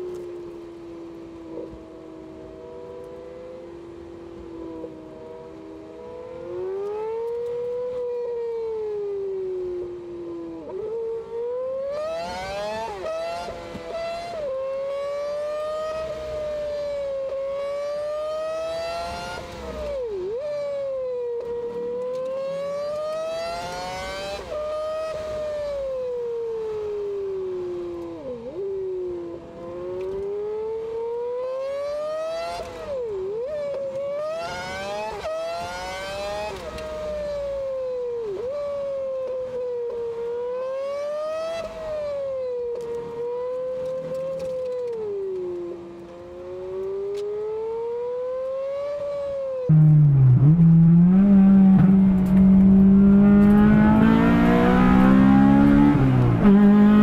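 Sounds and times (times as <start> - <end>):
car engine revving through gears: 10.6 - 20.8, 21.4 - 26.0, 29.6 - 37.7, 38.3 - 57.0.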